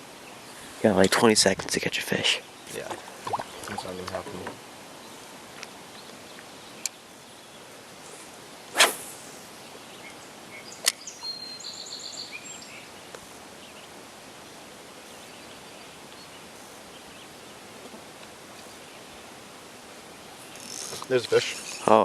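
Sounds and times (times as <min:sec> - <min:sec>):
faint outdoor background: 0:00.0 - 0:22.0
bird chirping: 0:09.6 - 0:13.9.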